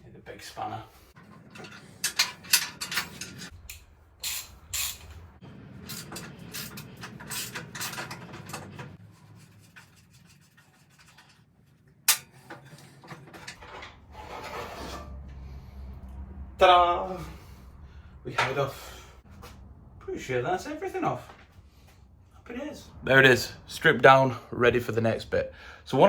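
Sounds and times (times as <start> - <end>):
spanner clinking on metal: 1.4 - 5.2, 5.8 - 8.9.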